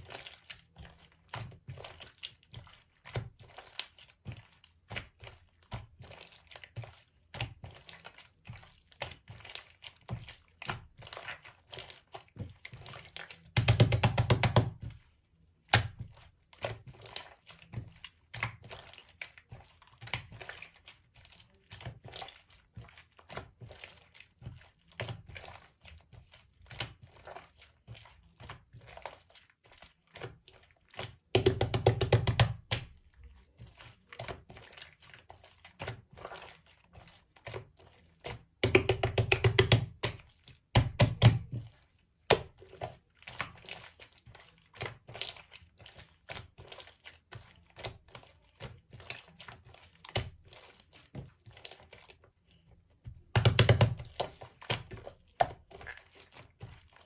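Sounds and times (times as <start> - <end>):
rapid crackling of slime: 0.0 - 57.0.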